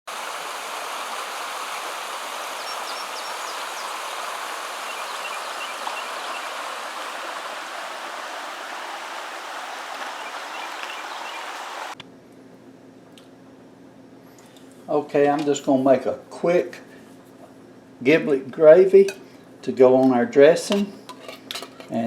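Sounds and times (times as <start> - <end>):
water rushing in a stream: 0.1 - 12.0
faint bird chirps: 2.4 - 4.2, 4.8 - 7.8, 9.7 - 12.0.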